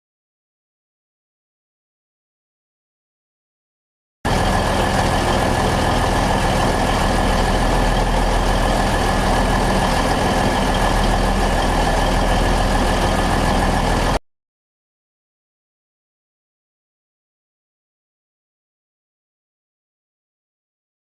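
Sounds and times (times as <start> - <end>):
locomotive engine hum: 4.3 - 14.2.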